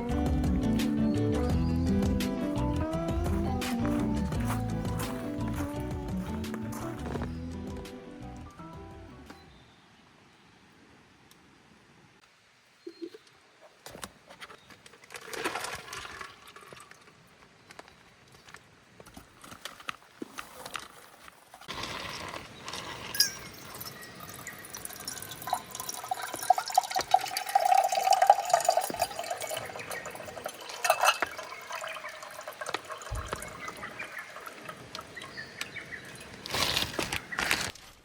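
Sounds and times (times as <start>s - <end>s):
water pouring into container: 15.1s - 17.1s, 21.7s - 35.4s.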